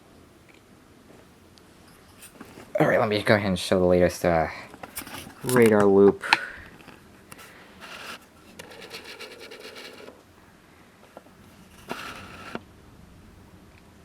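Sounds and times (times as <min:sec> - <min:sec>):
scratching and rubbing handling noise: 0:01.9 - 0:03.4, 0:04.2 - 0:06.0, 0:06.7 - 0:10.2, 0:11.3 - 0:12.6.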